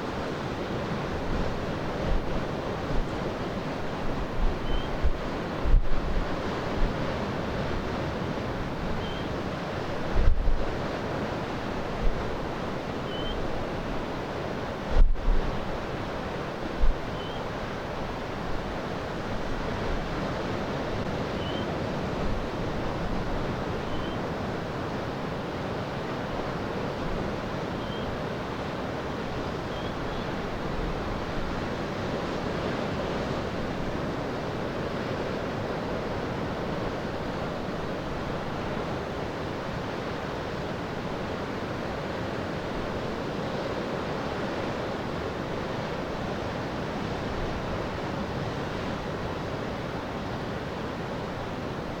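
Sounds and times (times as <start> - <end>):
surf and waves breaking: 0.0 - 52.0
wind buffeting microphone: 0.8 - 24.6.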